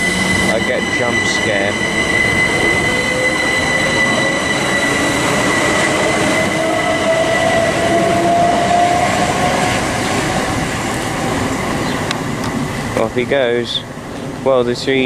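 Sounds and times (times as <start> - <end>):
high-pitched tone: 0.0 - 9.6
electric train traction motor whine: 0.0 - 14.4
train rumble: 0.0 - 15.0.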